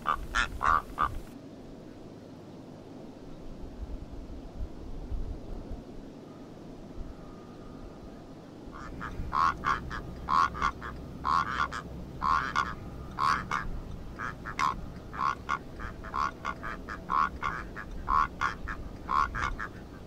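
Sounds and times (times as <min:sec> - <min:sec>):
bird harsh croaking calls: 0:00.0 - 0:01.4, 0:08.7 - 0:20.0.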